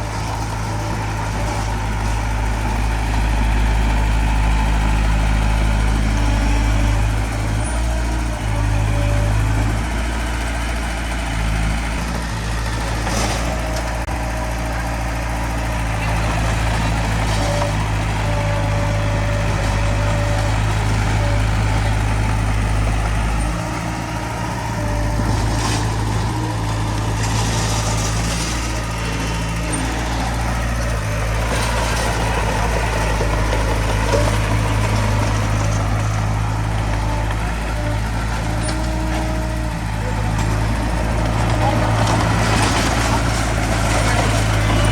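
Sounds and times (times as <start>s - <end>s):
bulldozer diesel engine droning: 0.0s - 44.9s.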